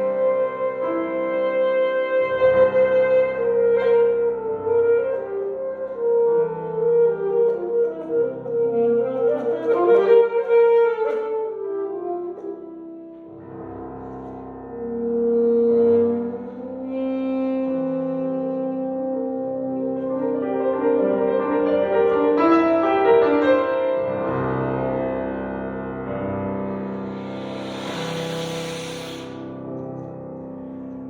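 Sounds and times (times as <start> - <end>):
alto saxophone melody: 0.0 - 13.4, 14.7 - 24.2
piano accompaniment: 0.0 - 31.0.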